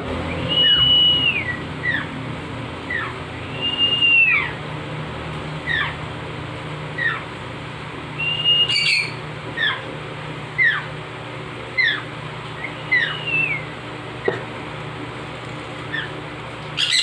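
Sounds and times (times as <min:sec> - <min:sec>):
steady low hum: 0:00.0 - 0:17.0
parrot whistled calls: 0:00.2 - 0:02.1, 0:02.9 - 0:04.6, 0:05.6 - 0:06.0, 0:07.0 - 0:07.2, 0:08.2 - 0:09.9, 0:10.6 - 0:10.9, 0:11.8 - 0:12.0, 0:12.6 - 0:13.7, 0:15.9 - 0:16.1, 0:16.8 - 0:17.0
baby parrot chirping: 0:00.3 - 0:02.2, 0:02.8 - 0:04.6, 0:05.6 - 0:06.0, 0:07.0 - 0:07.2, 0:08.2 - 0:09.9, 0:10.6 - 0:10.9, 0:11.8 - 0:13.7, 0:15.9 - 0:16.2, 0:16.8 - 0:17.0.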